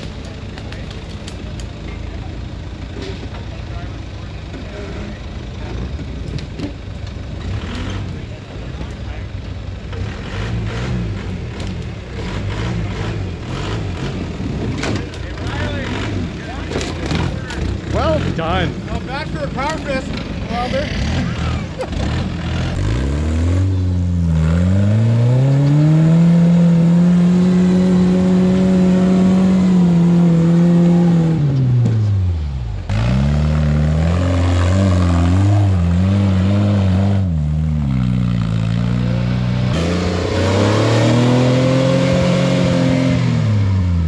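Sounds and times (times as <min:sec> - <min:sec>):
engine revving hard: 0:10.0 - 0:11.4, 0:12.2 - 0:14.3, 0:15.4 - 0:18.8, 0:20.5 - 0:31.6, 0:32.9 - 0:44.0.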